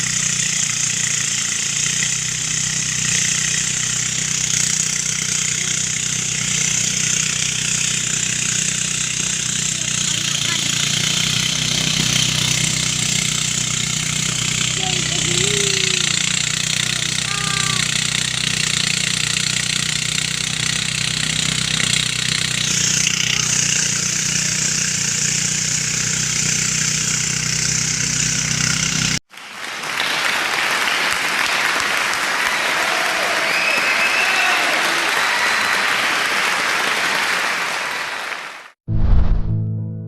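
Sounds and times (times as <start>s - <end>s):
thresher motor hum and hiss: 0.0s - 29.2s
even rushing noise: 38.9s - 39.7s.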